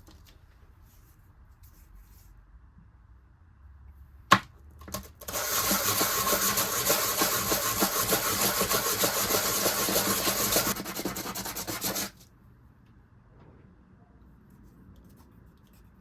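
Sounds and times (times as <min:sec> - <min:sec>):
hand tool scraping workpiece: 0:05.6 - 0:12.2.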